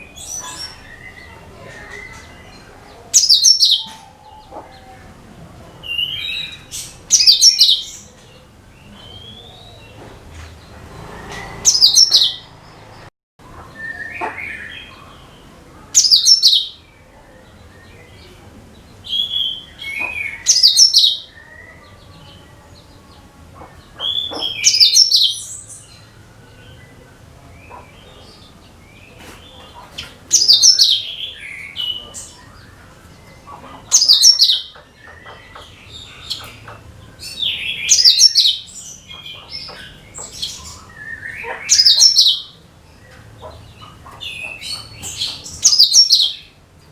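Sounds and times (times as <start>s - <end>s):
songbird singing: 0.0s - 46.9s.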